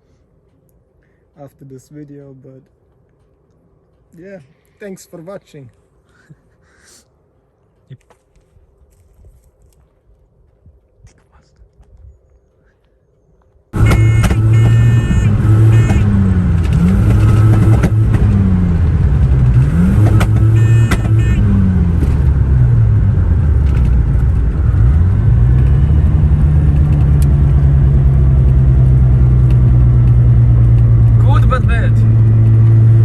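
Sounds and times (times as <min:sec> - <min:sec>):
rotary engine revving: 0:13.8 - 0:33.0.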